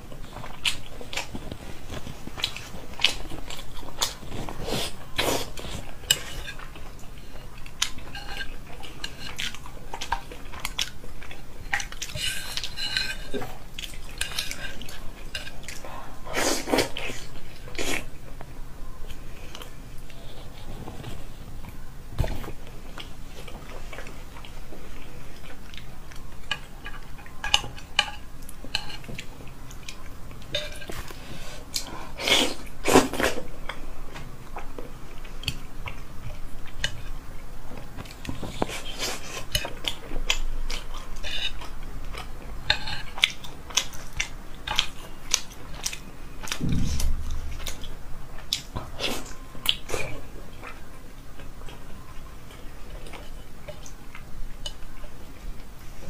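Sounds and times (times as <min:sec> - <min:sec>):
wet chewing and smacking: 0:00.0 - 0:15.9.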